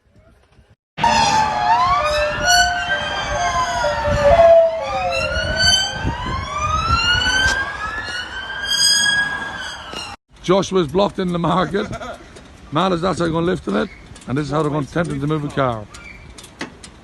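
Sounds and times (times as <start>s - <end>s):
low traffic rumble: 0.2s - 17.0s
emergency sirens wailing: 1.0s - 10.2s.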